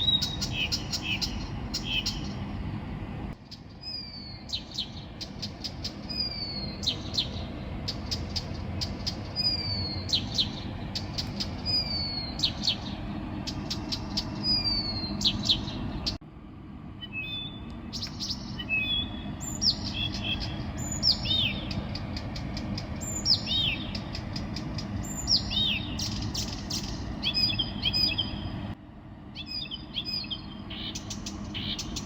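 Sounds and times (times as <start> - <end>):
songbird singing: 0.0 - 16.2, 16.8 - 32.0
steady low rumble: 0.0 - 32.0.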